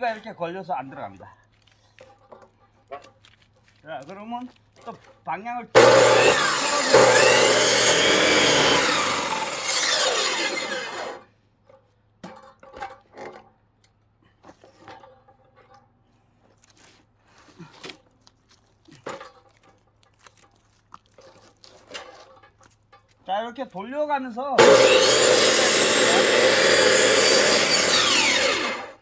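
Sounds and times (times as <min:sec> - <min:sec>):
power saw cutting log: 0:05.8 - 0:11.2, 0:24.6 - 0:29.0.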